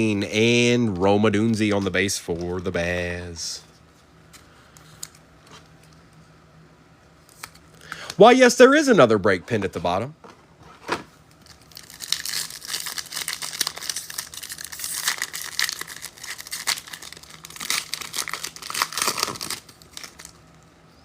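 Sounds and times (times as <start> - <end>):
foil wrapper tearing and crinkling: 11.4 - 20.6.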